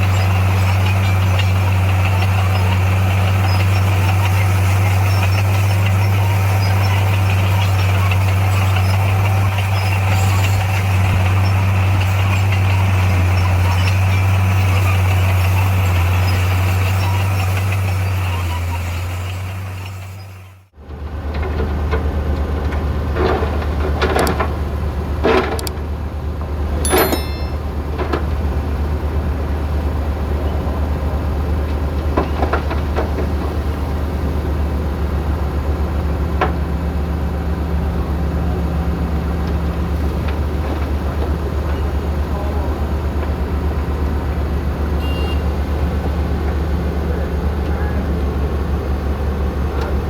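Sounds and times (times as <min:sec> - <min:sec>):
diesel engine humming: 0:00.0 - 0:50.0
short squeal: 0:26.8 - 0:27.7
metallic clanks: 0:26.8 - 0:28.2.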